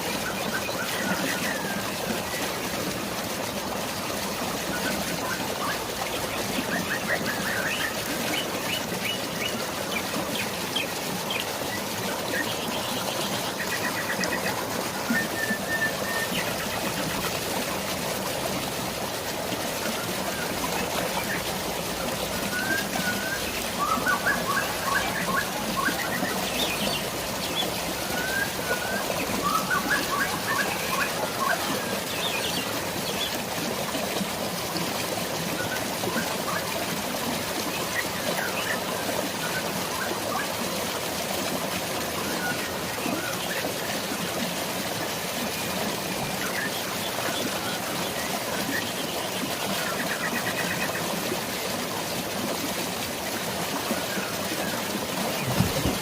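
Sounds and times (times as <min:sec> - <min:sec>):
water flowing: 0:00.0 - 0:56.0
birds chirping: 0:54.2 - 0:56.0.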